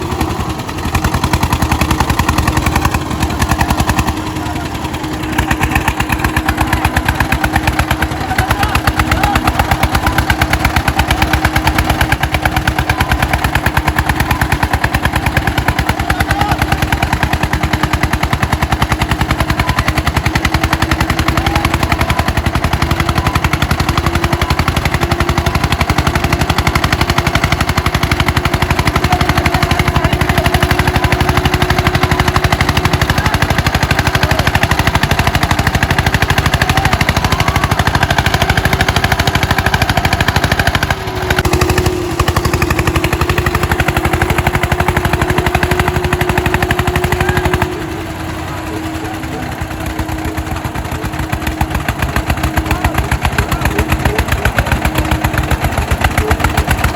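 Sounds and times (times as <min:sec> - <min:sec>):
tractor engines chugging under load: 0:00.0 - 0:56.9.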